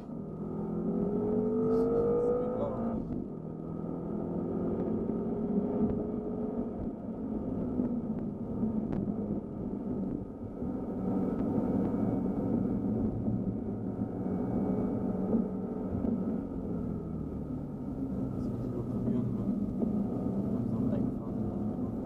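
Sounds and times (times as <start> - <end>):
car engine running: 0.0 - 22.0
tyres rumbling on wet track: 18.1 - 22.0.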